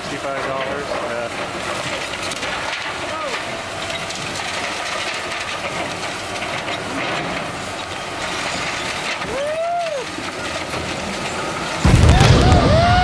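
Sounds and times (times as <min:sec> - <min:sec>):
heavy demolition machinery running: 0:00.0 - 0:13.0
machinery squeal: 0:07.8 - 0:11.6.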